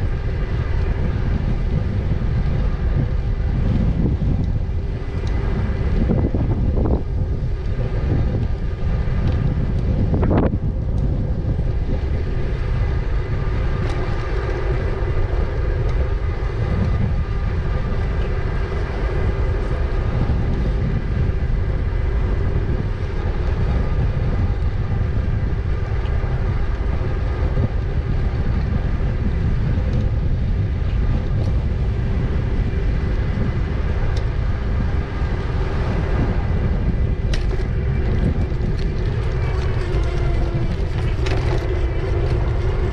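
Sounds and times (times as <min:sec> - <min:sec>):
wind rumbling on microphone: 0:00.0 - 0:42.9
electric motor whine: 0:11.1 - 0:42.9.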